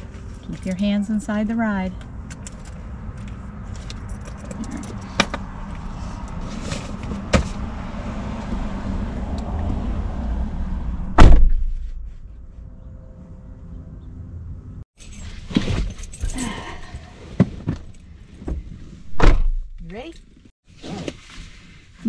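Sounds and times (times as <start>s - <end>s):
car door slamming: 11.1s - 11.9s, 19.1s - 19.7s.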